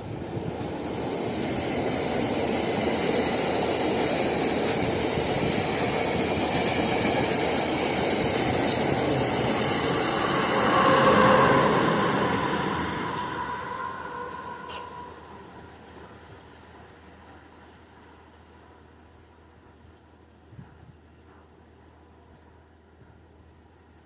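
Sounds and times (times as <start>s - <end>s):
train wheels rushing on rails: 0.0s - 18.5s.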